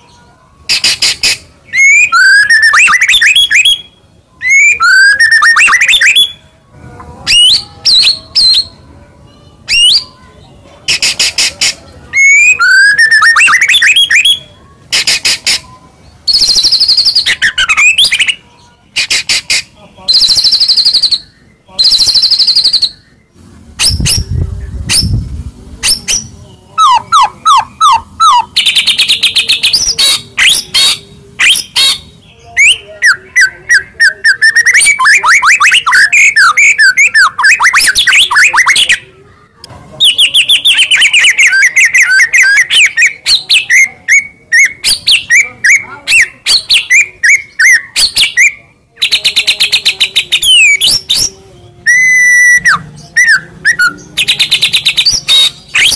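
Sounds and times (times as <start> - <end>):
bird singing: 0.0 - 6.6, 7.2 - 25.2, 25.8 - 39.1, 40.0 - 55.9.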